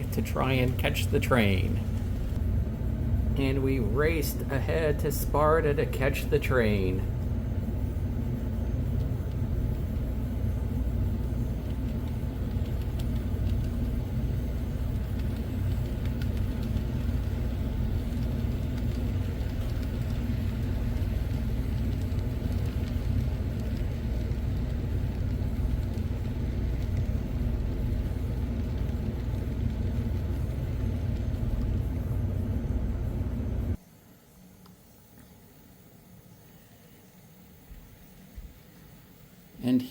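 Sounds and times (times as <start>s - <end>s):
model train rumbling: 0.0s - 33.8s.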